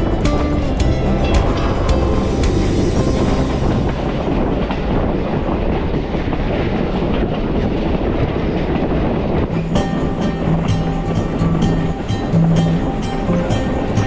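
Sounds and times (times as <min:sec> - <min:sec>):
music: 0:00.0 - 0:04.9, 0:09.5 - 0:14.0
rail car rumbling on track: 0:00.0 - 0:14.0
wheels clattering on rails: 0:00.0 - 0:14.0.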